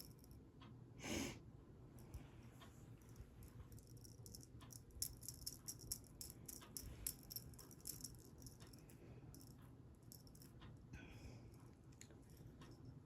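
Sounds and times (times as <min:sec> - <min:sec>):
small object rattling: 0:03.8 - 0:08.6.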